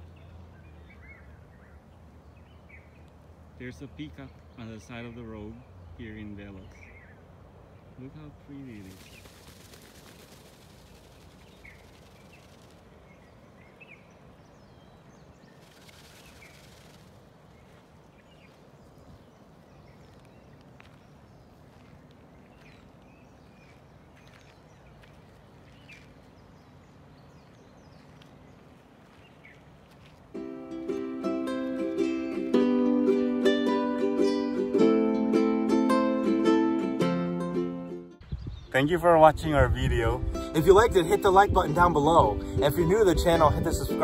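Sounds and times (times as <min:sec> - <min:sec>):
small birds chirping: 0:00.0 - 0:30.3, 0:38.2 - 0:44.0
soft hiss: 0:01.6 - 0:35.4.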